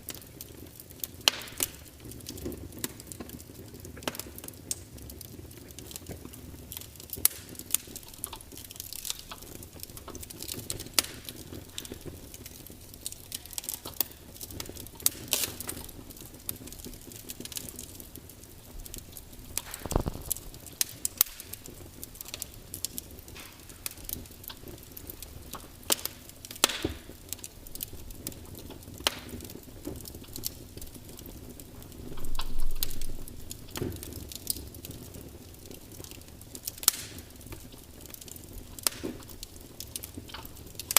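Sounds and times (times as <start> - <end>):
log fire crackling and popping: 0.0 - 40.9
rush of flame: 7.0 - 25.1, 26.0 - 35.5.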